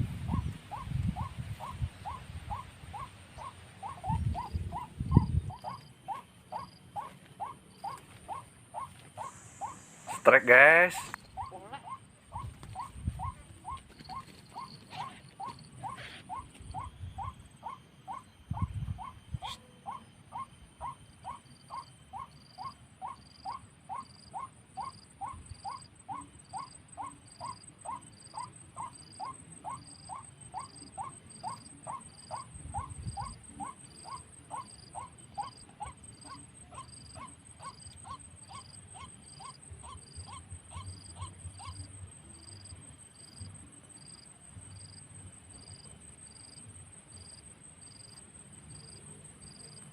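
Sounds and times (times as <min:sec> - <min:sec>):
wind rumbling on microphone: 0:00.0 - 0:05.8, 0:12.2 - 0:14.2, 0:18.5 - 0:19.6, 0:32.4 - 0:33.7.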